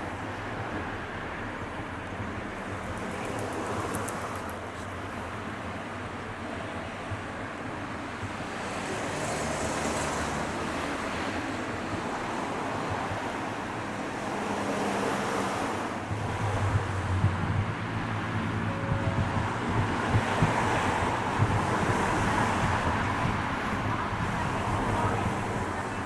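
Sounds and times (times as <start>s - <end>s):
train rushing noise: 7.6s - 26.0s.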